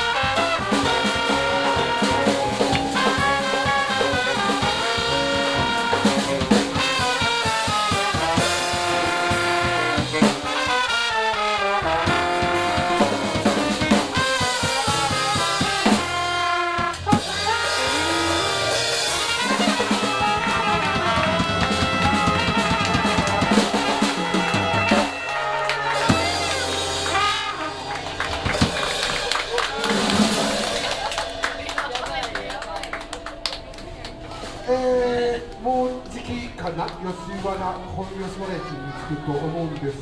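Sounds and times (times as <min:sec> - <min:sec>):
drum kit swing beat: 0:00.0 - 0:34.8
jazz horns playing: 0:00.0 - 0:38.6.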